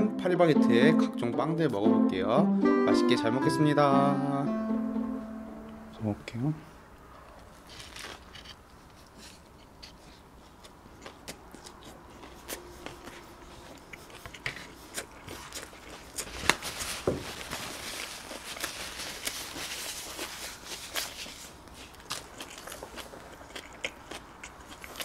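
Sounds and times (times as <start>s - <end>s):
chewing bread: 7.6s - 25.0s
paper napkin rustling: 16.2s - 22.0s.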